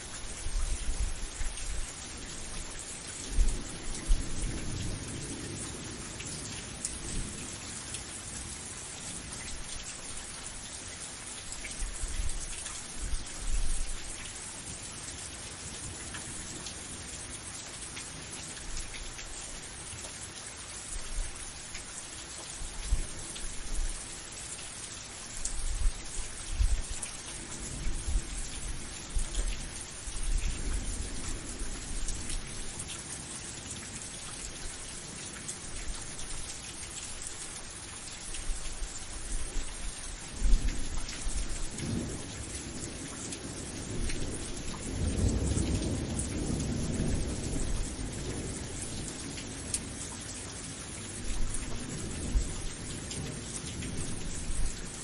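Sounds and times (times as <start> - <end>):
steady rain falling: 0.0 - 55.0
low thunder rumbling: 43.4 - 49.3.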